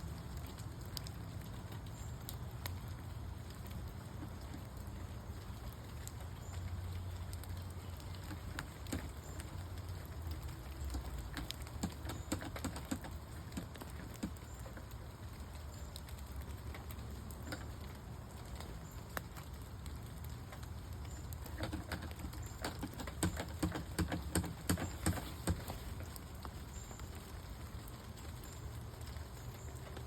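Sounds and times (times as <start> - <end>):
light rain pattering: 0.0 - 30.0
sharp taps and clicks: 7.3 - 14.9, 20.5 - 26.5.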